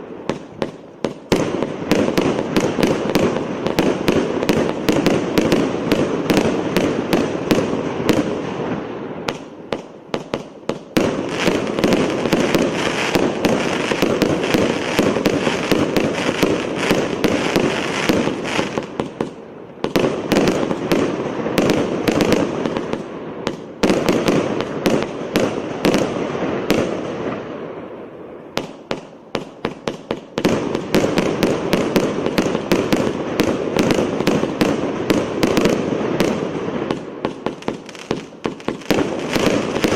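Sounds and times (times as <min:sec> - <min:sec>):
firework cake firing rapid shots: 0:10.2 - 0:27.0, 0:28.6 - 0:39.9.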